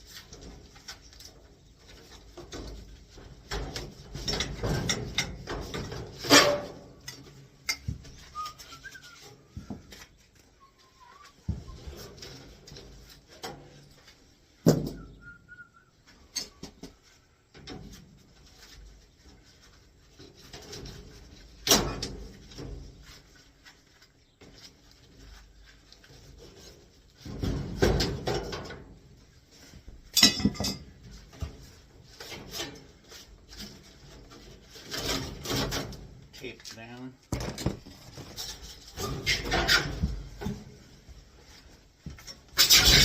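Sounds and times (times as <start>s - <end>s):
sheet metal knocks and scraping: 0.1s - 10.1s, 20.1s - 23.3s, 26.1s - 36.3s, 37.3s - 41.2s, 42.1s - 43.0s
short whistled note: 8.3s - 9.3s, 14.9s - 15.9s.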